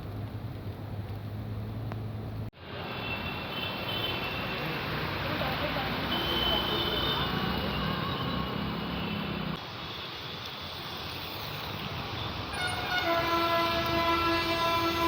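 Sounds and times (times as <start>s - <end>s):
long horn blast: 12.5s - 15.0s.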